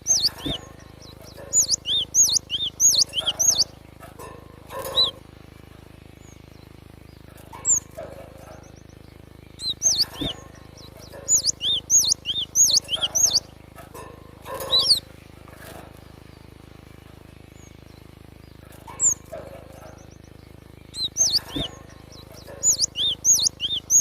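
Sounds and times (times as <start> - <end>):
tit calling whistled notes: 1.5 - 3.7, 11.3 - 13.5, 22.6 - 24.0.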